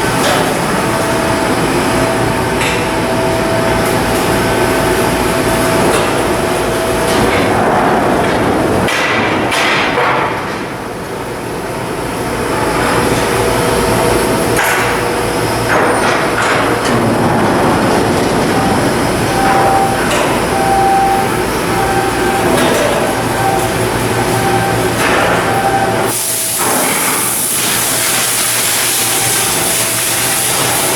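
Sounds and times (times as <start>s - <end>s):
loud industrial din: 0.0s - 30.9s.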